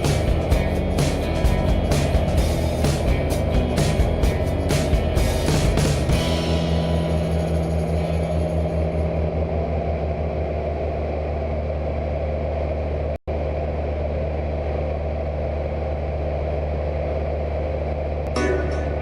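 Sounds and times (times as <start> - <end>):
light aircraft engine droning: 0.0 - 19.0.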